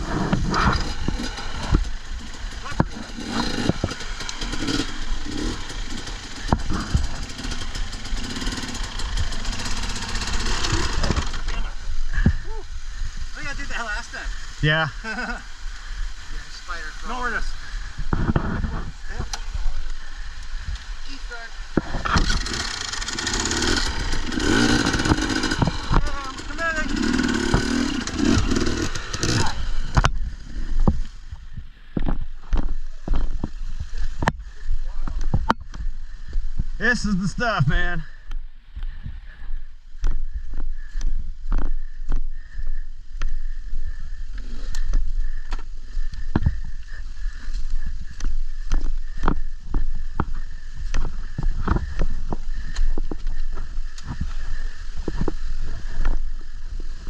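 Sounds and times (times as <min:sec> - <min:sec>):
clatter and scrapes of bike handling: 0:00.0 - 0:11.7
dirt bike engine running: 0:00.0 - 0:57.0.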